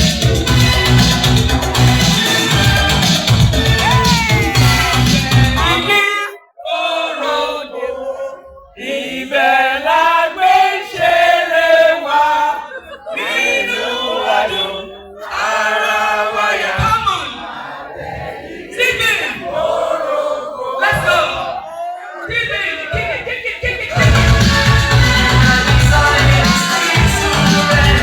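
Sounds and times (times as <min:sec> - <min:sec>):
bass and beat: 0:00.0 - 0:05.9, 0:23.9 - 0:28.0
voices singing together: 0:00.0 - 0:28.0.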